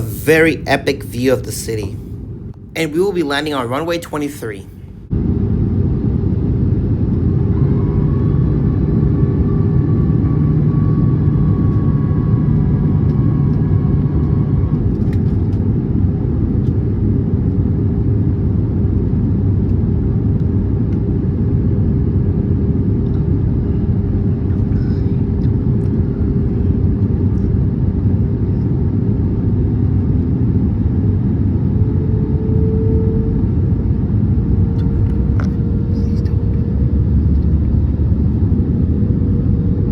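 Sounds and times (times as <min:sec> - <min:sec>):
aircraft engine and airflow rumble: 0:00.0 - 0:39.9
whining tones: 0:06.7 - 0:15.0.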